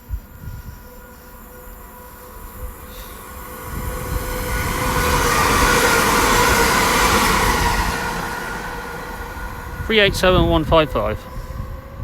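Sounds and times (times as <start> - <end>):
electric train passing: 0.0 - 12.0.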